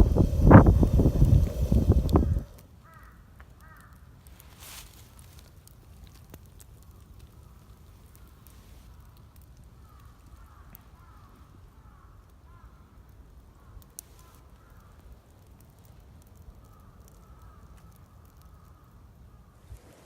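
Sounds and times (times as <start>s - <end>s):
low rumble: 0.0s - 2.6s
campfire crackling and popping: 0.0s - 19.5s.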